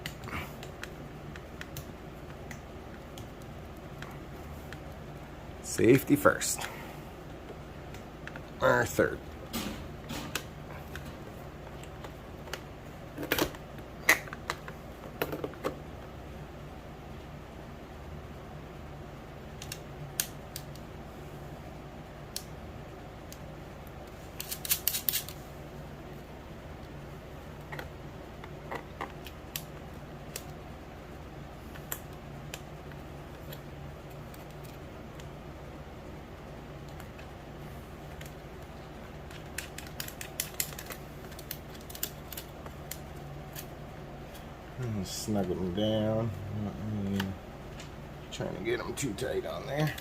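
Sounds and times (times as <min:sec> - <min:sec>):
steady low hum: 0:00.0 - 0:50.0
small parts clicking: 0:24.4 - 0:25.4, 0:39.3 - 0:43.7.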